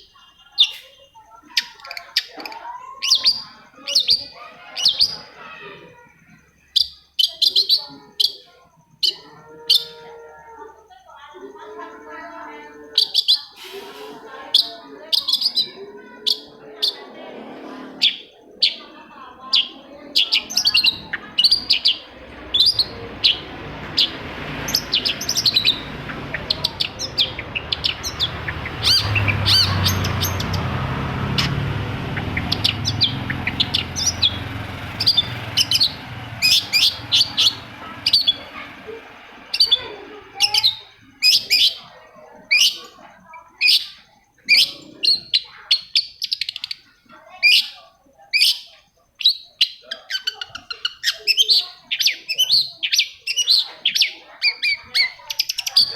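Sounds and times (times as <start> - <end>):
bird chirping song: 0.0 - 55.9
low rumbling noise: 15.9 - 41.2.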